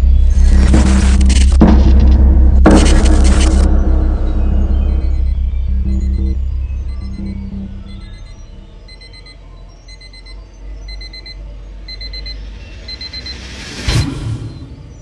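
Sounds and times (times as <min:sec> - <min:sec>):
low rumble: 0:00.0 - 0:15.0
digital alarm clock beeping: 0:04.9 - 0:14.0
loud short whoosh: 0:12.2 - 0:15.0.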